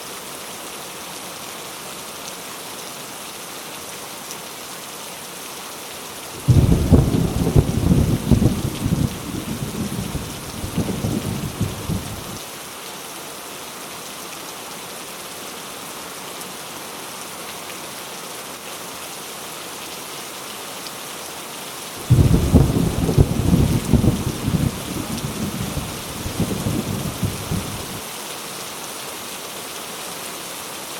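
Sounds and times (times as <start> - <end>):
heavy rain falling: 0.3 - 30.9
thunder rumbling: 6.4 - 12.4, 22.0 - 28.0.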